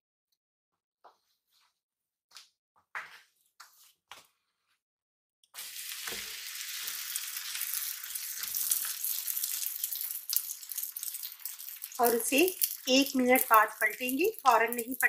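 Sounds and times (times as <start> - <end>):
flatbread sizzling in oil: 5.5 - 15.0.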